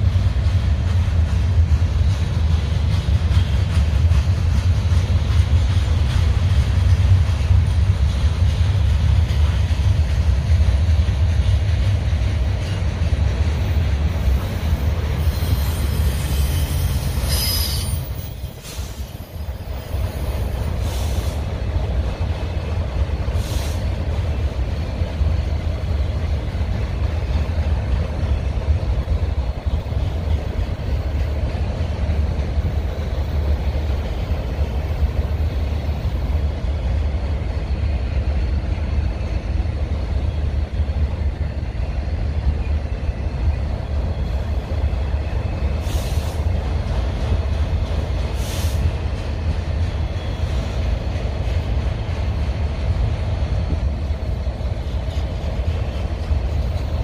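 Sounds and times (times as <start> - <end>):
rumble of wheels on rails: 0.0 - 57.0
high-pitched wheel squeal: 15.2 - 19.4.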